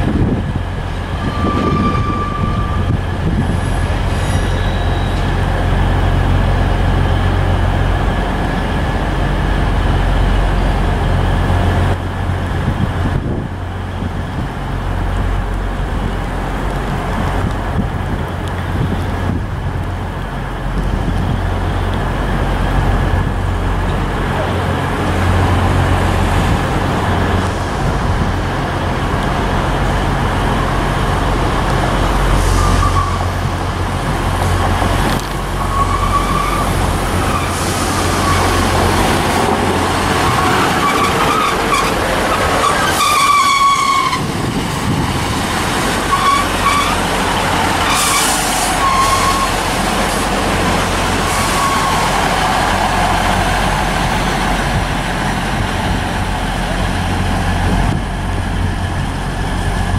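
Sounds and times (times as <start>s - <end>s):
diesel engines humming: 0.0s - 59.9s
high metallic wheel squeals: 1.1s - 3.0s, 3.6s - 5.3s, 47.8s - 49.6s.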